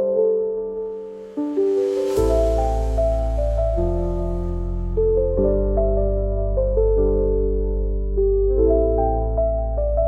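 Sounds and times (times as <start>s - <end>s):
sustained low bass: 2.1s - 6.8s.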